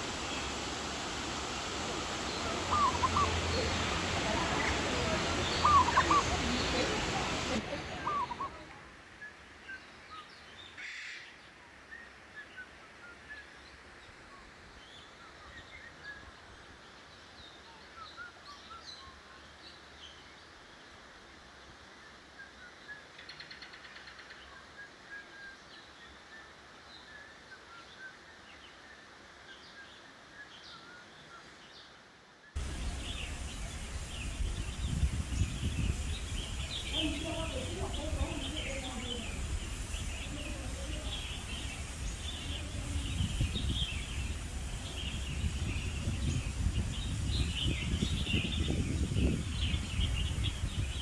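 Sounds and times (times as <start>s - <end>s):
small birds chirping: 0.0s - 8.8s, 32.6s - 51.0s
busy background noise: 0.0s - 9.2s, 32.6s - 51.0s
faint background hiss: 0.0s - 51.0s
bird rattling call: 2.0s - 8.5s, 32.6s - 48.5s.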